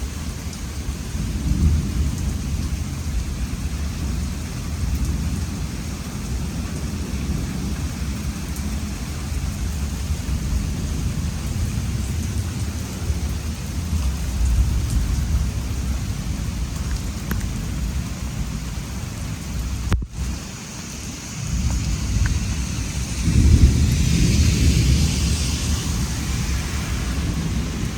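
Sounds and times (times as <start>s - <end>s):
heavy rain: 0.0s - 27.9s
thunder rumbling: 0.0s - 27.9s.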